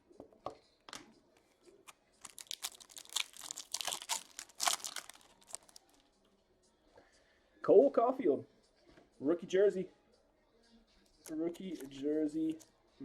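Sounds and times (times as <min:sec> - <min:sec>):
wrapper crinkling and tearing: 0:02.2 - 0:06.0.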